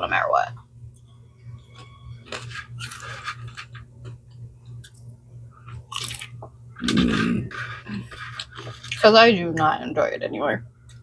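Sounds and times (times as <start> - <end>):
person chewing: 1.7 - 4.2, 5.6 - 9.0.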